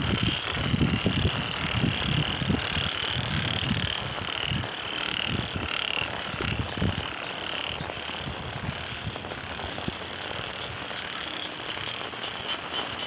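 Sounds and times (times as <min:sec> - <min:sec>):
frogs calling: 0:00.0 - 0:13.0
wind on microphone: 0:00.0 - 0:13.0.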